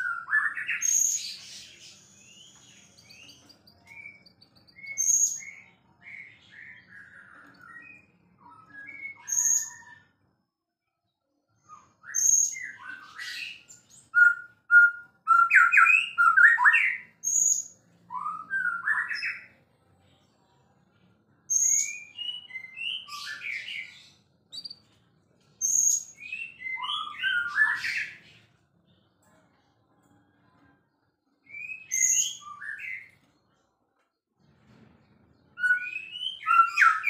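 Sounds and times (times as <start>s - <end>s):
songbird whistling and warbling: 0.0s - 10.3s, 11.6s - 19.6s, 21.5s - 24.8s, 25.6s - 28.3s, 31.4s - 33.2s, 35.5s - 37.0s.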